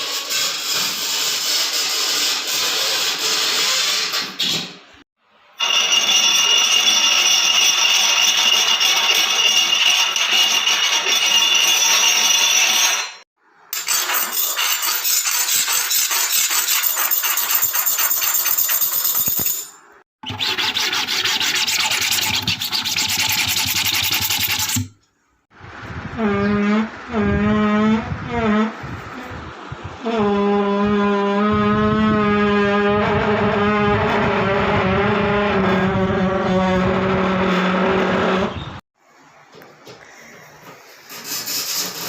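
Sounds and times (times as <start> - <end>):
fast scraping strokes: 20.3 - 24.9, 41.0 - 42.0.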